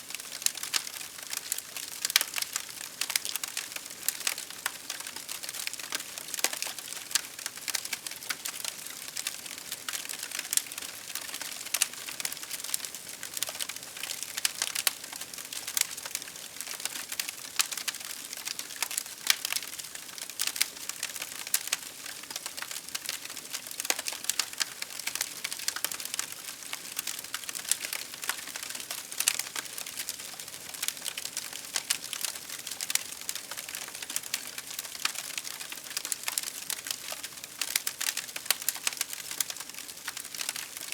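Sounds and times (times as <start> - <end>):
wood fire crackling: 0.1 - 40.9.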